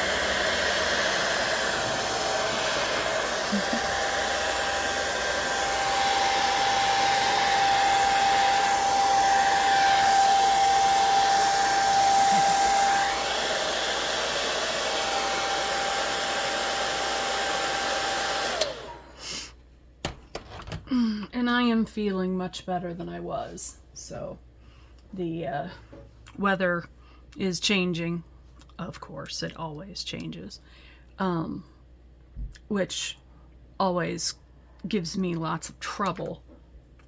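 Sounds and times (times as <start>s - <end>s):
hair dryer running: 0.0s - 19.4s.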